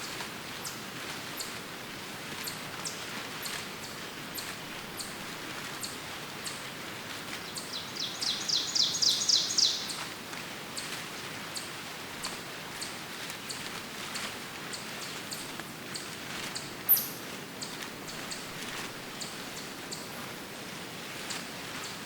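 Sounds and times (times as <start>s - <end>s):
forest rustling hiss: 0.0s - 22.0s
songbird fast trill: 7.7s - 10.0s.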